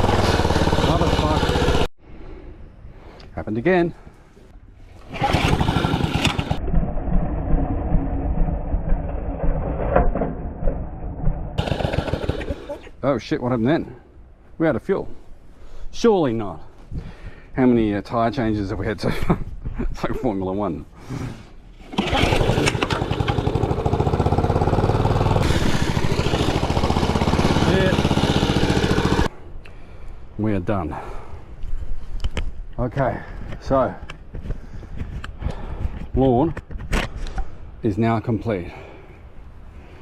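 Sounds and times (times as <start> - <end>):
lawnmower engine running: 0.0 - 1.9, 5.0 - 6.6, 11.6 - 12.8, 21.9 - 29.3.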